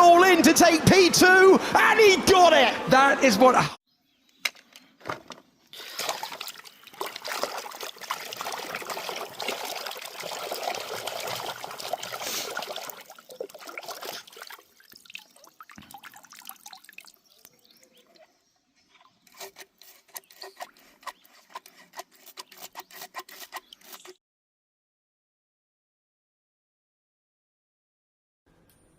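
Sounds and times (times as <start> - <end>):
water trickling and splashing: 5.7 - 18.2.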